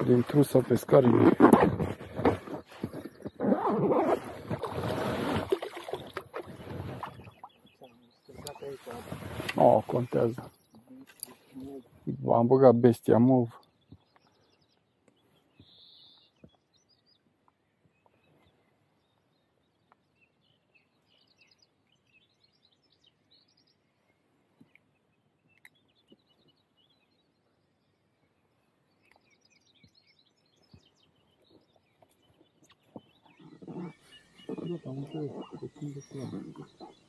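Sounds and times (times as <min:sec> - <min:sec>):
faint bird chirps: 0:13.5 - 0:37.0.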